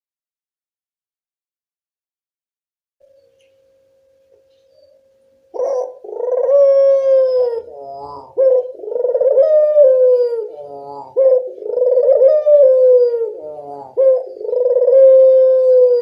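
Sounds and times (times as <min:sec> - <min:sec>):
dove cooing: 0:04.8 - 0:16.0.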